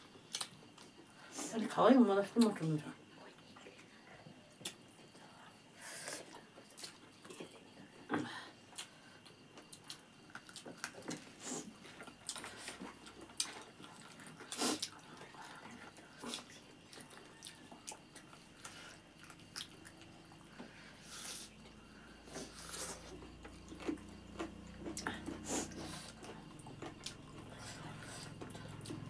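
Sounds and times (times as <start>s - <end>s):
people chewing and lip-smacking: 3.3s - 5.2s, 6.2s - 20.8s, 22.4s - 29.0s.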